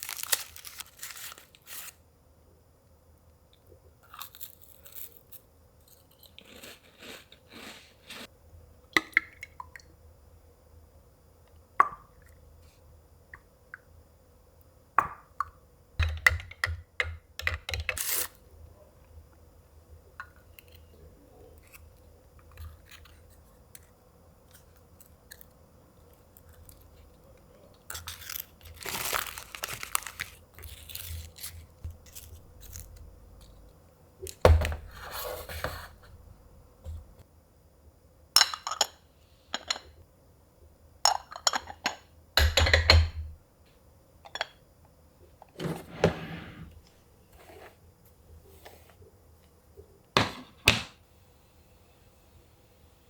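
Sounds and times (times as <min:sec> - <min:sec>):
faint steady hum: 0:00.0 - 0:53.0
rustling or scraping: 0:45.6 - 0:47.8.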